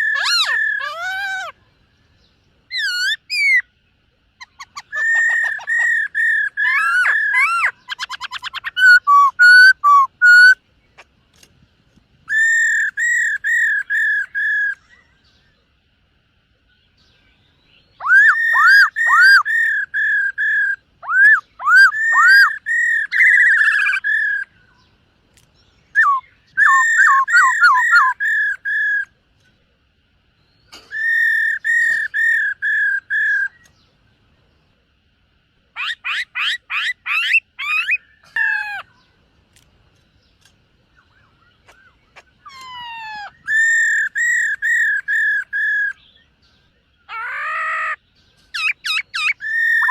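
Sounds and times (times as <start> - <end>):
bird singing whistled phrases: 2.7 - 3.7, 4.4 - 10.6, 12.3 - 15.1, 17.8 - 24.8, 25.9 - 29.1, 30.6 - 33.7, 41.0 - 46.3, 47.1 - 49.9
bird trilling fast: 2.7 - 3.7, 4.4 - 11.5, 12.3 - 15.0, 17.9 - 24.6, 25.9 - 29.2, 30.7 - 33.8, 35.8 - 39.0, 40.4 - 46.1, 47.0 - 49.9.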